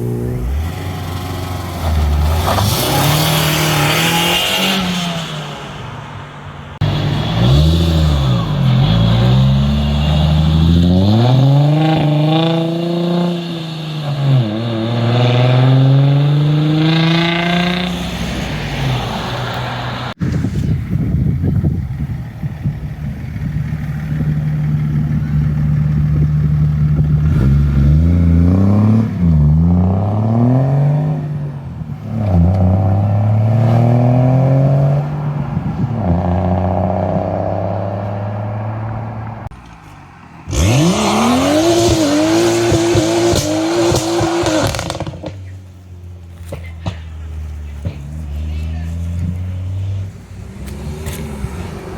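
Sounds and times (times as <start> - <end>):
engine revving hard: 0.0 - 5.6, 6.8 - 18.2, 27.2 - 31.3, 40.5 - 45.3
car accelerating and shifting gear: 0.0 - 20.2, 22.6 - 51.9
car engine idling: 20.8 - 27.5.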